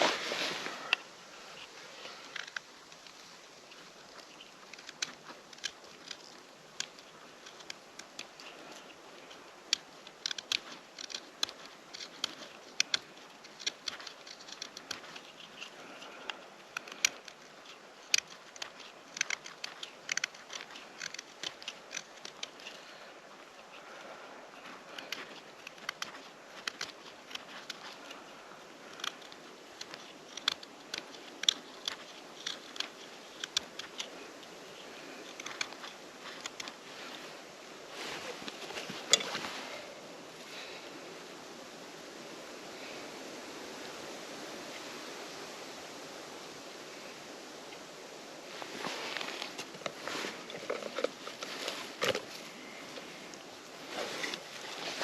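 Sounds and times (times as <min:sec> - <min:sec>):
campfire crackling: 0:00.0 - 0:41.4, 0:46.9 - 0:55.0
faint steady hiss: 0:00.0 - 0:55.0.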